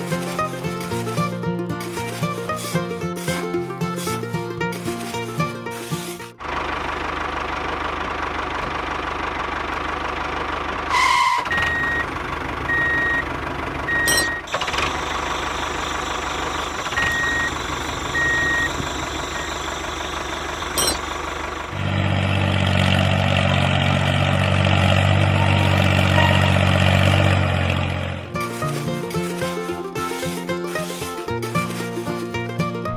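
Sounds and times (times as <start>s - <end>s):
deep loud engine: 0.0s - 32.9s
heavy vehicle engine running: 0.0s - 32.9s
reversing alarm beeps: 11.1s - 12.0s, 13.9s - 14.5s, 17.0s - 19.6s.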